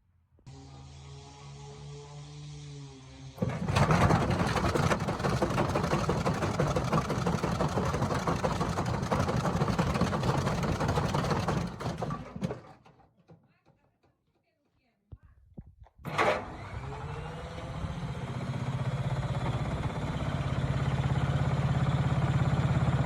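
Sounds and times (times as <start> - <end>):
washing machine spinning and rattling: 3.4 - 13.6.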